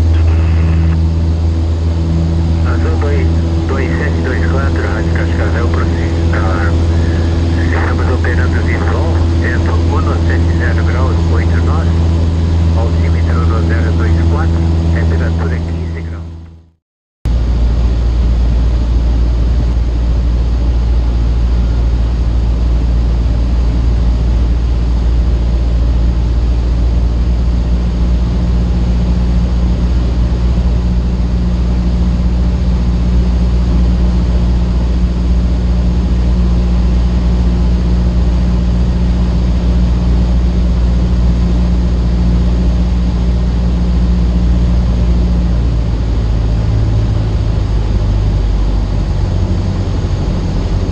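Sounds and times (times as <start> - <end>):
aircraft engine and propeller droning: 0.0 - 16.6, 17.3 - 50.9.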